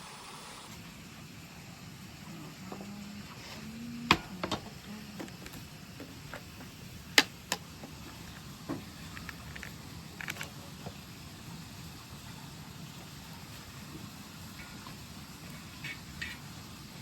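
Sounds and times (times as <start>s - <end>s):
faint steady hum: 0.0s - 17.0s
clicks of small hard objects: 9.1s - 10.6s.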